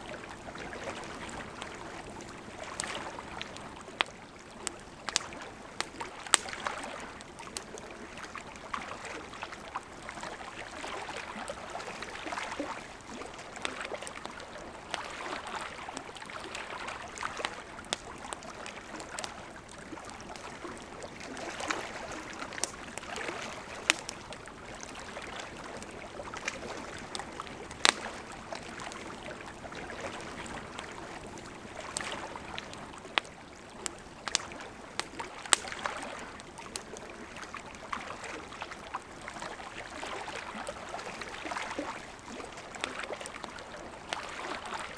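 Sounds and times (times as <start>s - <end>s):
campfire wood popping and snapping: 0.4s - 8.6s, 12.0s - 37.5s.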